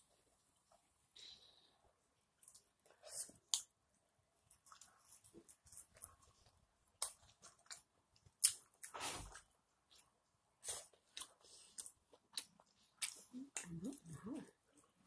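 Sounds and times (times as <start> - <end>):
wet chewing clicks and smacks: 7.0 - 8.9, 10.8 - 13.8.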